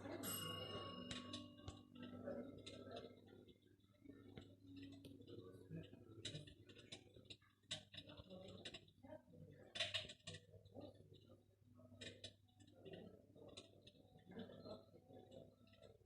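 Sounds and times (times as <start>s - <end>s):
faint irregular clicks: 12.0s - 14.5s.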